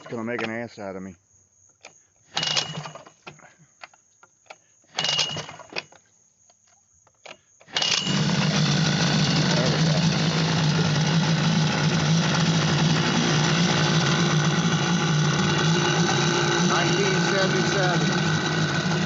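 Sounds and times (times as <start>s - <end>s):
outboard motor starting and running: 0.0s - 0.4s, 2.3s - 3.5s, 4.9s - 5.9s, 7.6s - 19.0s.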